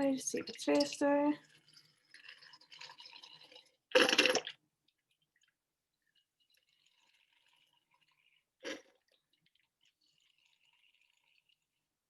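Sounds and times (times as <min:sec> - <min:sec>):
oil trickling into glass jar: 0:00.0 - 0:11.9.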